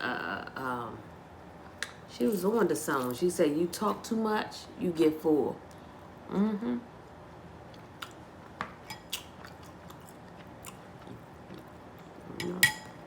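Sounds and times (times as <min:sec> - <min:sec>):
person humming: 0:06.3 - 0:06.9
chewing food: 0:07.7 - 0:12.6.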